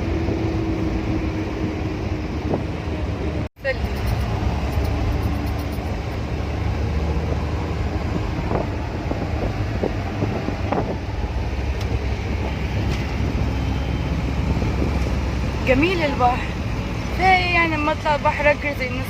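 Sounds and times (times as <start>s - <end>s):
wind noise on microphone: 0.0s - 3.4s, 5.6s - 15.6s
road traffic rumble: 0.0s - 19.0s.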